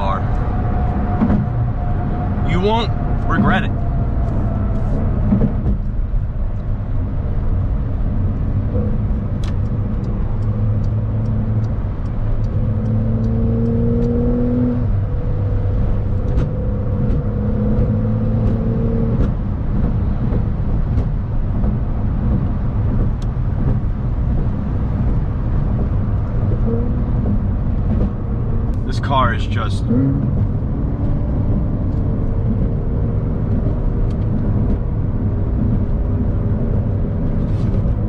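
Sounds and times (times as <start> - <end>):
car engine cruising: 0.0 - 38.0
road and tyre rumble: 0.0 - 38.0
light evenly spaced ticks: 9.4 - 14.1.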